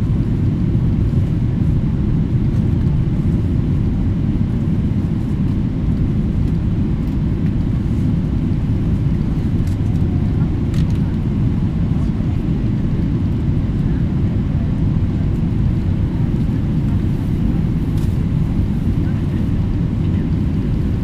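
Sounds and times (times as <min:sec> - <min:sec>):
jet engine low rumble: 0:00.0 - 0:21.0.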